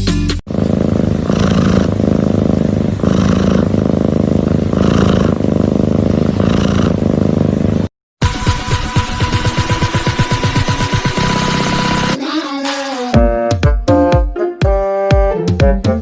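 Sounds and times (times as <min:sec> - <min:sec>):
cat purring loudly: 0:00.5 - 0:07.9.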